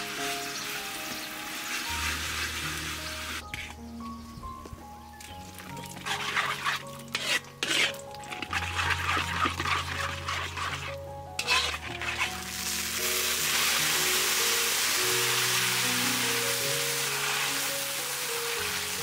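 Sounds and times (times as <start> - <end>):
sauce sizzling in a wok: 0.0 - 3.4, 11.4 - 19.0
background music: 0.0 - 19.0.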